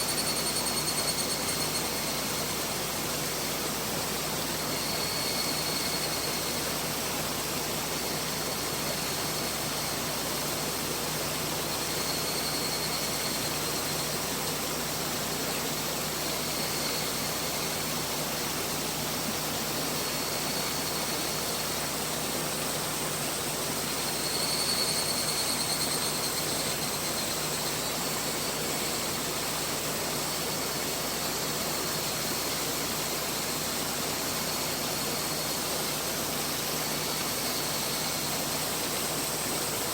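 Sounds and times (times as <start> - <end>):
faint high wavering tone: 0.0 - 2.2, 4.6 - 6.8, 11.8 - 14.2, 24.0 - 27.9.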